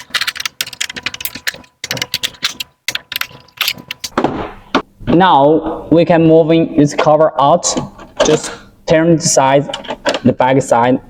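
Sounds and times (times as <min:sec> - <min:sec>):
plastic parts clicking and rattling: 0:00.0 - 0:04.2, 0:09.7 - 0:10.3.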